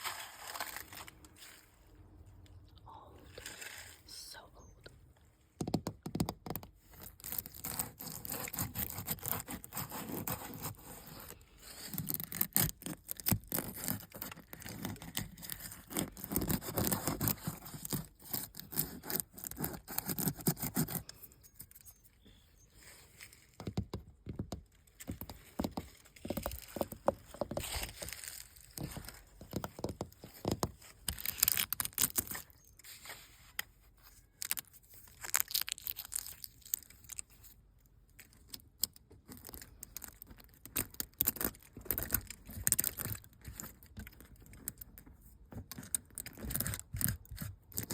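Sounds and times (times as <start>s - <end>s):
paint being scraped and peeled: 0.0s - 1.8s, 3.3s - 4.1s, 6.8s - 23.6s, 24.9s - 37.6s, 39.2s - 47.9s.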